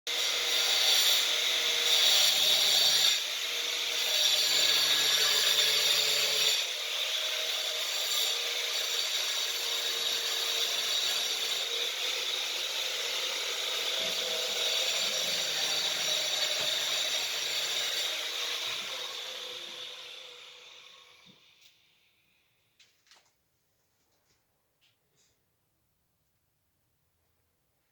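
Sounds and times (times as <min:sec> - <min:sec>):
power tool grinding: 0:00.1 - 0:21.7.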